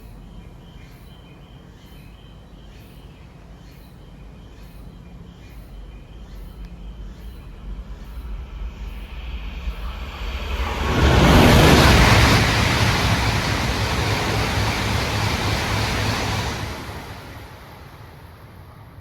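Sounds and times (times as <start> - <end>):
train passing at high speed: 5.5 - 19.0.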